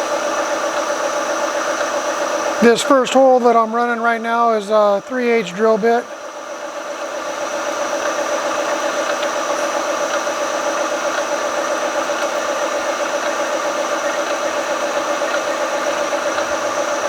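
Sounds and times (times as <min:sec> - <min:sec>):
milling machine drilling metal: 0:00.1 - 0:06.2.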